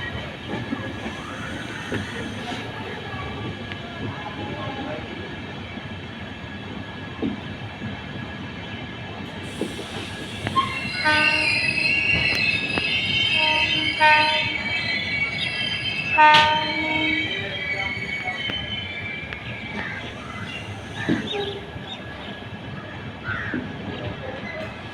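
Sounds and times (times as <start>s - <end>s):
train wheels squealing: 0.0s - 3.6s, 9.4s - 22.9s
passenger train running: 0.0s - 24.9s
train horn blasts: 10.6s - 12.3s, 13.2s - 14.9s, 16.1s - 17.9s.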